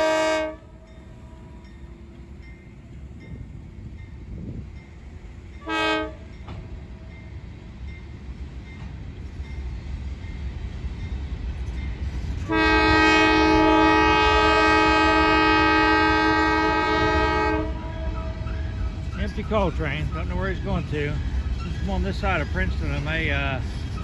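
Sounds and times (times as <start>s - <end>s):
locomotive horn: 0.0s - 2.2s, 5.6s - 7.2s, 12.5s - 18.6s
train rumble: 0.0s - 24.0s.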